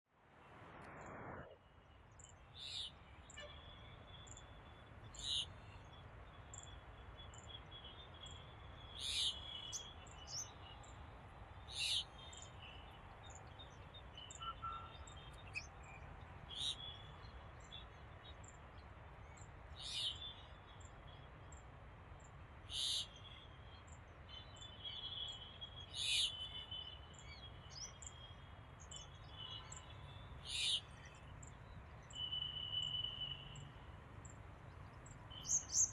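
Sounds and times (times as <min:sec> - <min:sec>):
faint high chirps: 0:32.1 - 0:33.8.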